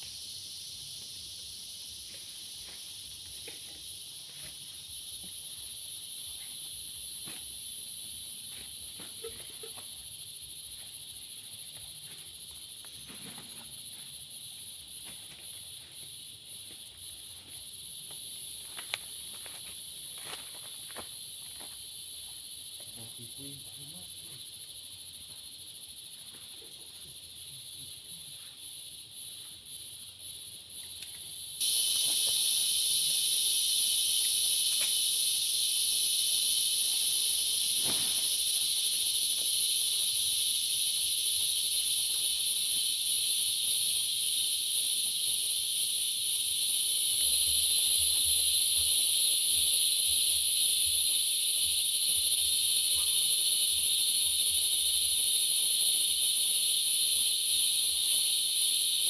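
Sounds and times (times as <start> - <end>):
forest insects buzzing: 0.0 - 59.0.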